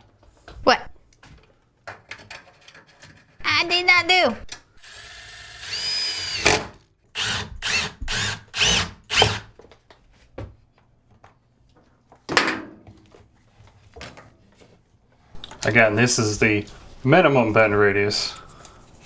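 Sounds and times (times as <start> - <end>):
power drill whining: 4.8 - 9.5.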